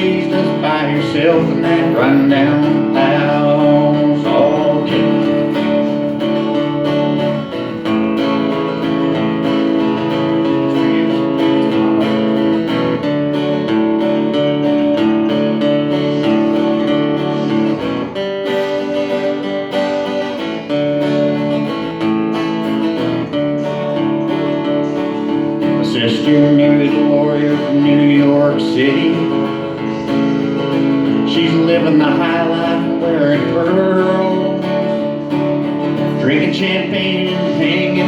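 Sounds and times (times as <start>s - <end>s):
guitar strummed: 0.0s - 38.0s.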